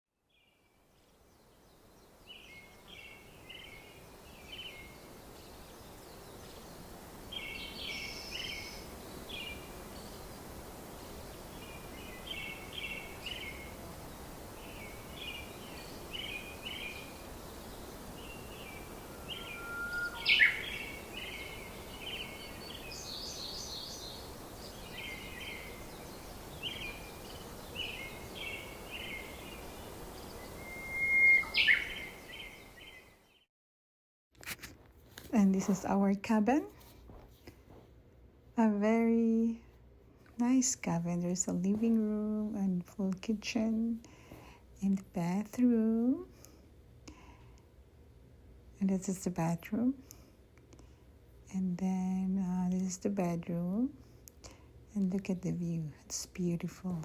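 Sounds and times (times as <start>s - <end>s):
background hiss: 0.3s - 33.4s, 34.4s - 57.0s
small birds chirping: 0.3s - 33.5s.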